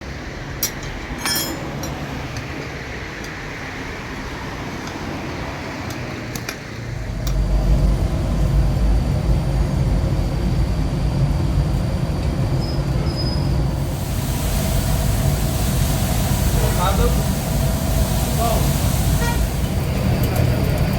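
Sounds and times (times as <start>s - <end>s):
low vehicle rumble: 6.8s - 20.9s
rushing hiss: 13.6s - 20.9s.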